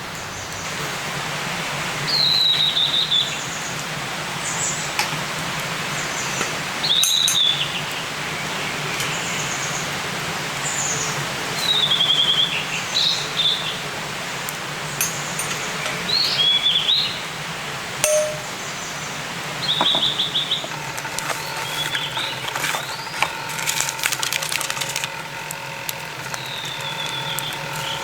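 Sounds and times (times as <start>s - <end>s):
forest birds calling: 5.8s - 10.0s, 10.6s - 28.0s.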